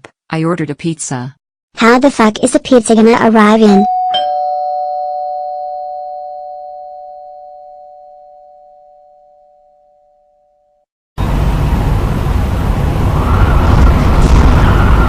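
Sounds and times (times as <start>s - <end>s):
doorbell ding-dong chime: 3.8s - 10.7s.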